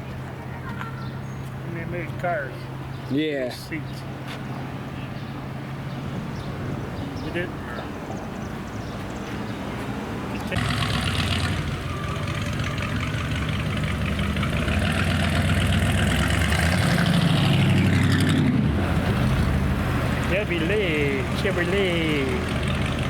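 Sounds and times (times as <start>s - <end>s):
car engine starting and running: 10.5s - 23.0s.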